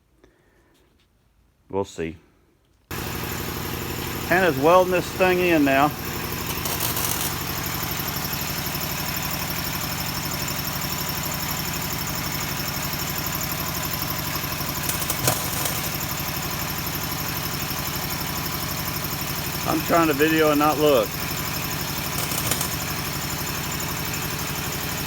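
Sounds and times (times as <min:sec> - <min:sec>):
rapid low hum: 0:05.9 - 0:12.0, 0:13.4 - 0:16.8, 0:21.2 - 0:25.0
welder hissing: 0:14.8 - 0:16.2, 0:22.0 - 0:23.2.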